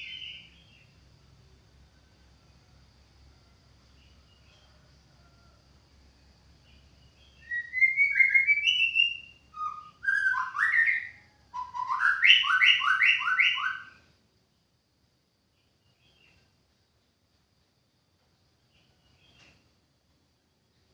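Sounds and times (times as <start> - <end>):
bird singing whistled phrases: 0.0 - 0.6, 7.2 - 14.0.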